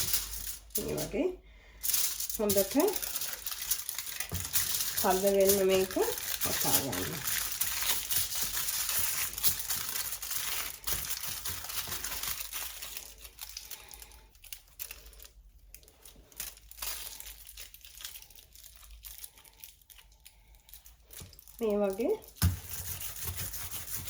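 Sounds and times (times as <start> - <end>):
aluminium foil crinkling: 0.0 - 24.0.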